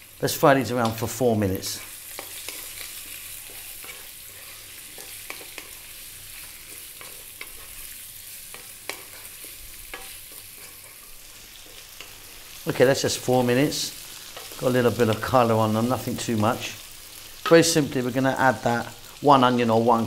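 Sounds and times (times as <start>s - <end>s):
potatoes sizzling in oil: 0.0s - 20.0s
wooden spoon scraping and tapping: 2.1s - 5.8s, 6.4s - 7.8s, 8.5s - 12.2s.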